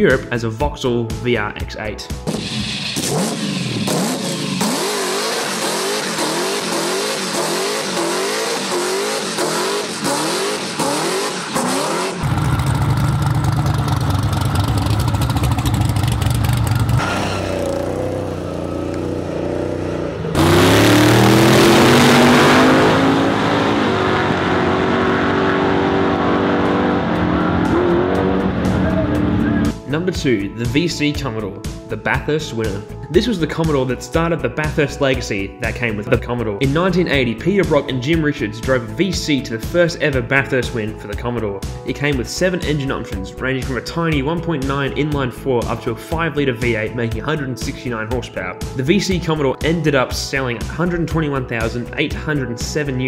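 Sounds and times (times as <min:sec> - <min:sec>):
tyres screeching in burnout: 0:02.3 - 0:12.3
car engine revving hard: 0:02.3 - 0:29.8.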